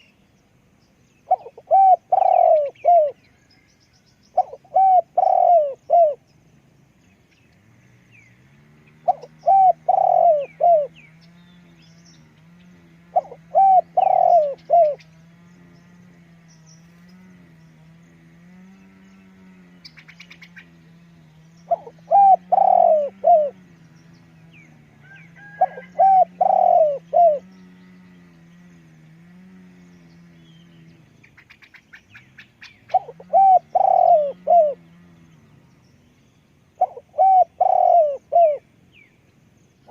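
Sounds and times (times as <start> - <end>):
small birds chirping: 0.0 - 39.9
dove cooing: 1.2 - 3.2, 4.3 - 6.2, 8.9 - 11.0, 12.5 - 15.4, 21.6 - 23.8, 24.7 - 28.0, 32.9 - 35.2, 36.8 - 38.7.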